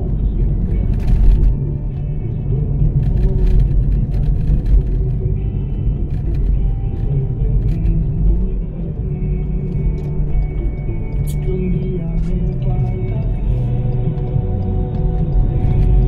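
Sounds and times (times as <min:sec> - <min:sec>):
song on car radio: 0:00.0 - 0:16.0
vehicle rumble from inside cabin: 0:00.0 - 0:16.0.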